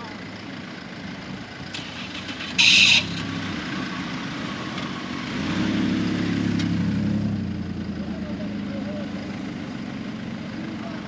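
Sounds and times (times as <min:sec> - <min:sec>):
vehicle engine idling and revving: 0:00.0 - 0:11.0
short high-pitched burst: 0:01.8 - 0:03.2.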